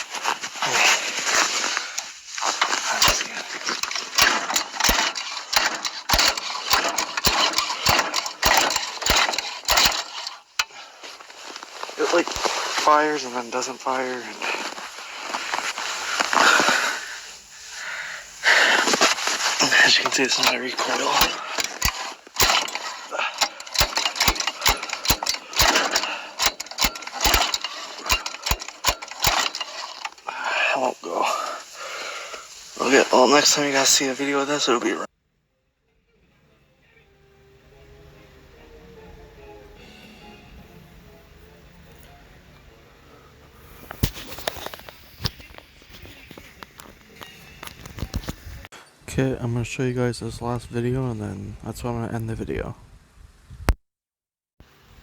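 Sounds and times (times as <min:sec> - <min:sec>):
recoil pull-starter cranking: 0:00.0 - 0:17.8, 0:18.4 - 0:34.7
small engine sputtering: 0:00.0 - 0:34.9.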